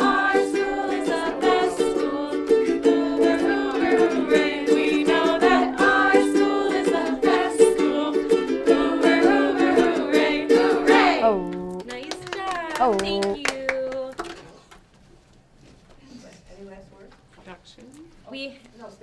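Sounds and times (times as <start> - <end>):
group of people singing: 0.0 - 11.7
ukuleles strumming: 0.0 - 14.1.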